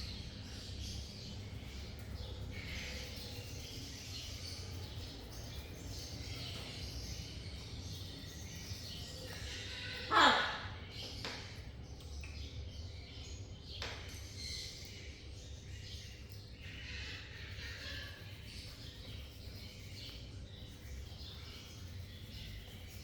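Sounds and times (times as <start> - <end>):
parrot chirping and chattering: 1.0 - 13.2, 14.2 - 23.0
parrot squawk: 9.7 - 10.8.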